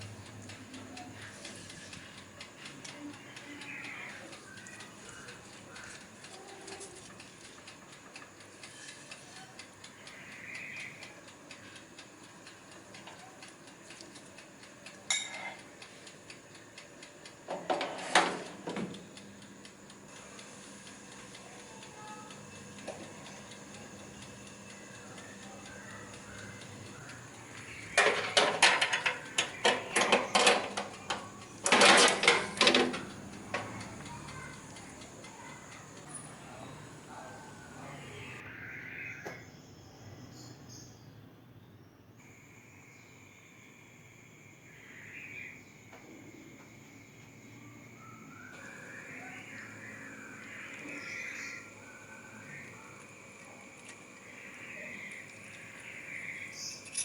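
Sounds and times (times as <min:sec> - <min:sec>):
kitchen utensils and dishes clattering: 0:15.1 - 0:15.6, 0:17.5 - 0:18.9, 0:28.0 - 0:33.1.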